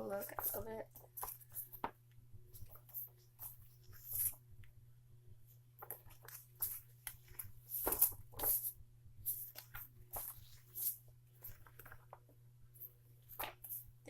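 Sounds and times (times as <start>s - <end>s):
steady low hum: 0.0s - 14.0s
paper posters rustling: 5.8s - 8.7s.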